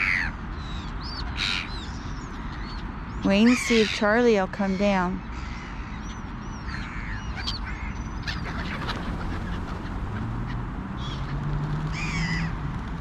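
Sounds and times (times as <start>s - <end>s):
steady low rumble: 8.4s - 12.1s.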